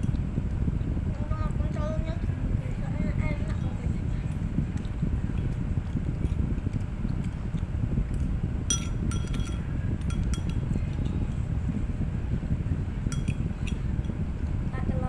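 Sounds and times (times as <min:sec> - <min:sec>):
metal spoon clinking on plate: 0:08.7 - 0:10.7, 0:13.1 - 0:13.8.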